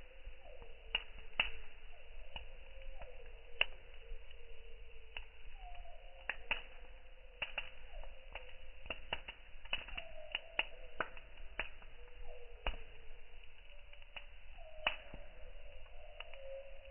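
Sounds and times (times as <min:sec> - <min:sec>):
campfire wood crackling: 0:00.0 - 0:16.9
faint wavering whistle: 0:05.5 - 0:06.2, 0:09.8 - 0:16.9.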